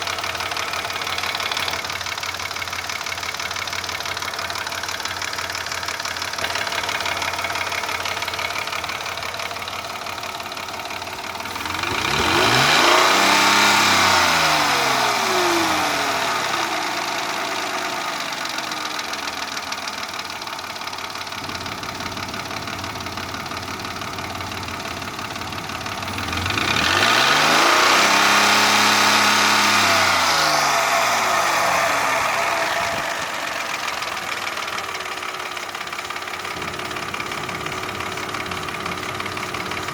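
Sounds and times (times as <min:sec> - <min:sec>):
engine revving: 0:00.0 - 0:10.6, 0:11.2 - 0:19.4, 0:21.4 - 0:39.9
car engine idling with a knock: 0:35.8 - 0:39.9.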